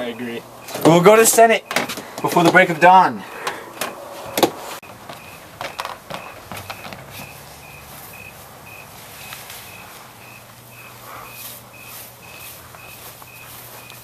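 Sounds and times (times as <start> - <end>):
cricket chirping: 5.1 - 14.0
background hiss: 7.1 - 14.0.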